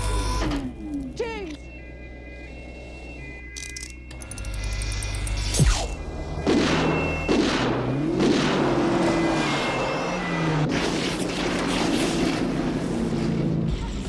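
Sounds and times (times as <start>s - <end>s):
film music: 0.0s - 10.7s
car engines revving: 5.1s - 14.0s.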